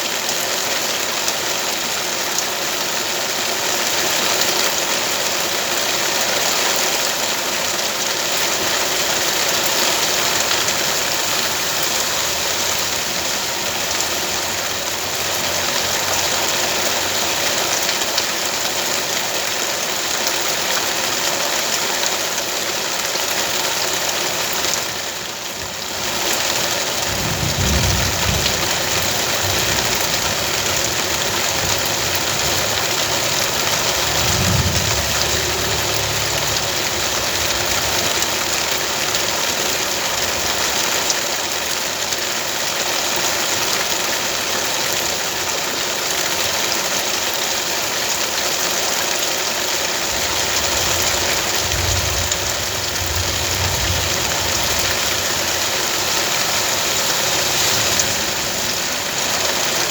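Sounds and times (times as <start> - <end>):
steady rain hiss: 0.0 - 59.9
low rumbles: 27.4 - 40.1, 50.0 - 59.9.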